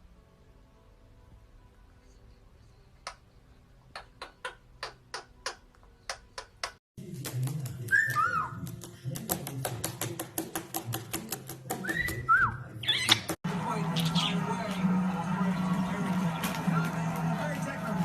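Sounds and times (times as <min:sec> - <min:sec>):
parrot chirps: 0:11.9 - 0:13.3, 0:14.0 - 0:14.4.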